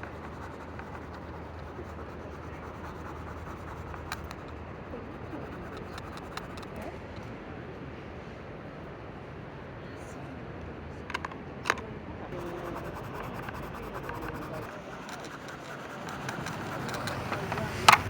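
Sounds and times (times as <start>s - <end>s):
pencil scratching on paper: 0.0s - 6.9s, 12.3s - 18.0s
steady low hum: 12.3s - 18.0s.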